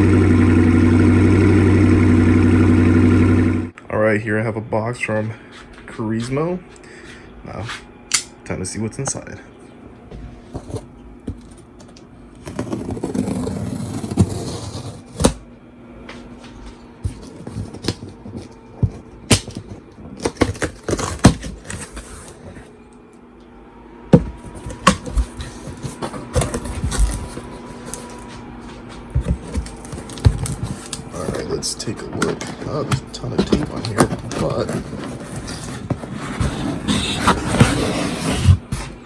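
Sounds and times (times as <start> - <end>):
cardboard box scraping: 12.4 - 15.3, 29.2 - 39.0.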